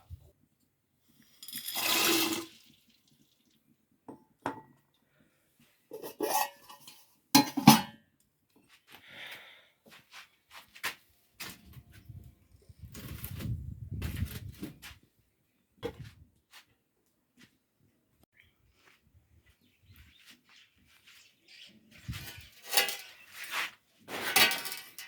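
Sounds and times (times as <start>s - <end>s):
pots and dishes clinking: 5.9s - 8.0s.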